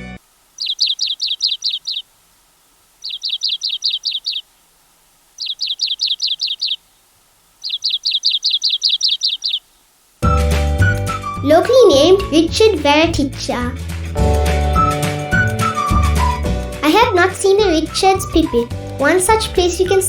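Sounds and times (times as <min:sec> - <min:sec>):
bird calling high falling chirps: 0:00.5 - 0:02.1, 0:03.0 - 0:04.6, 0:05.3 - 0:11.4.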